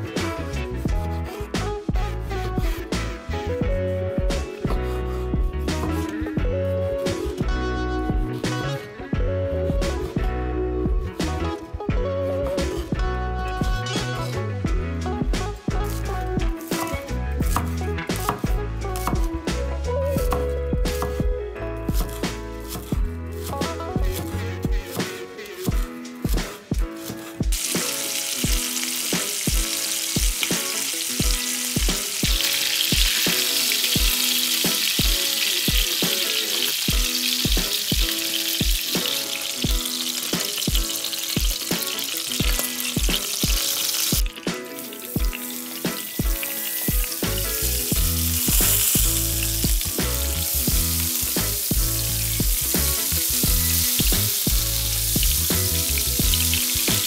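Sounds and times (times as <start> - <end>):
background music with steady beat: 0.0 - 57.0
chicken sizzling in a frying pan: 27.5 - 57.0.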